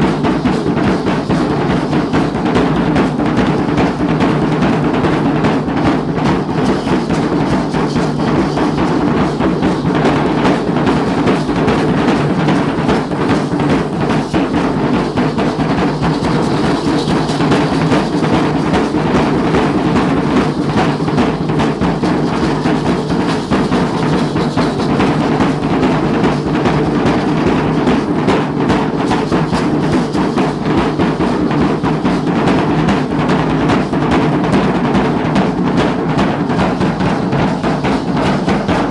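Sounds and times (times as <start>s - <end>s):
fast steady drumming: 0.0s - 38.9s.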